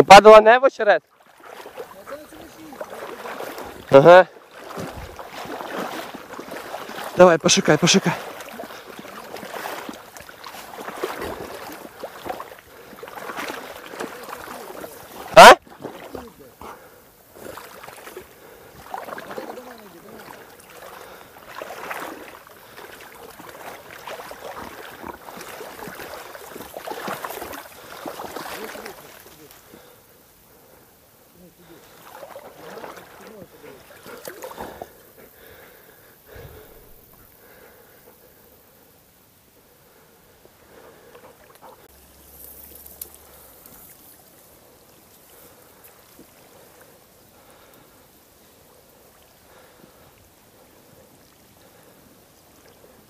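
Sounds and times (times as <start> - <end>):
splashing in shallow water: 0.0 - 53.0
rustling reeds: 1.1 - 16.6, 41.3 - 47.9.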